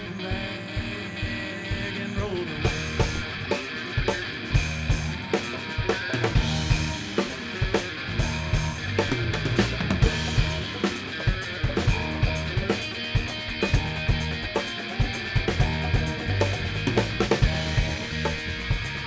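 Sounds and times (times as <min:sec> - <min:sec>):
bass guitar: 0:00.0 - 0:19.0
electric guitar chords: 0:00.0 - 0:19.0.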